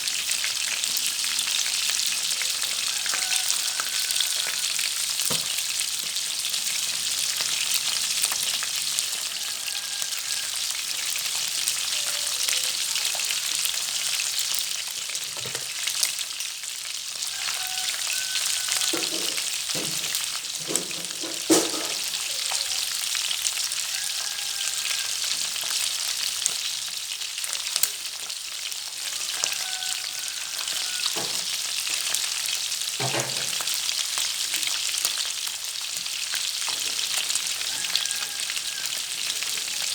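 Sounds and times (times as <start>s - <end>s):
fish frying in hot oil: 0.0s - 39.9s.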